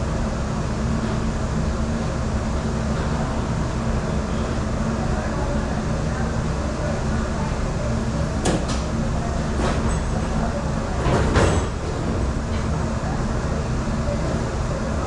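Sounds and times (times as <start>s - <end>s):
dish machine rumbling: 0.2s - 15.0s.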